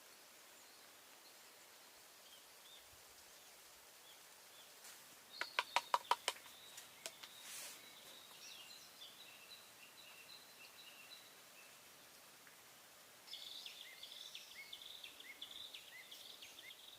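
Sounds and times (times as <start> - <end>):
outdoor background noise: 0.0 - 16.9
sharp clicks: 5.4 - 7.4
faint high bird chirps: 5.4 - 11.9
brief hiss: 6.8 - 8.3.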